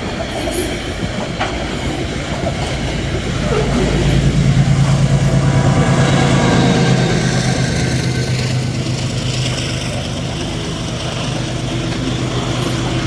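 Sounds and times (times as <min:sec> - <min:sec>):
train wheels rumbling on rails: 0:00.0 - 0:13.0
low diesel hum: 0:00.1 - 0:13.0.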